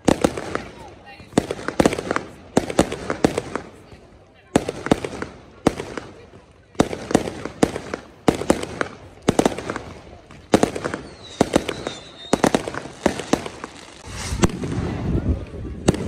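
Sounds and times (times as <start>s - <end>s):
fireworks bangs and crackles: 0.0s - 16.0s
high wavering firework whistle: 10.9s - 15.2s.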